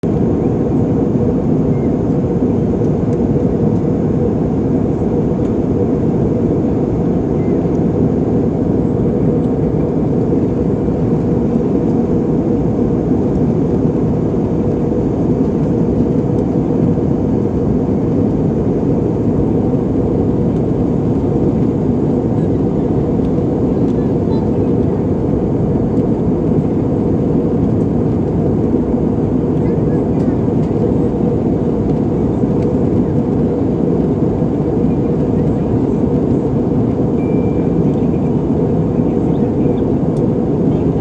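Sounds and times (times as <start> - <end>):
airliner cabin engine noise: 0.0 - 41.0.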